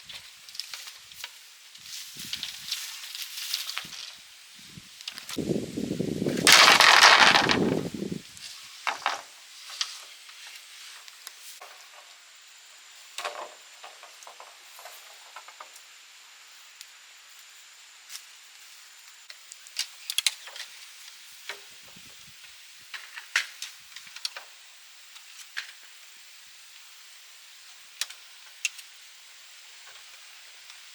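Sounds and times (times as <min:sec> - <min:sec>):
bamboo rustling and knocking: 0:00.1 - 0:04.2, 0:06.3 - 0:12.3, 0:13.1 - 0:15.9
loud rustling scrape: 0:06.3 - 0:08.0.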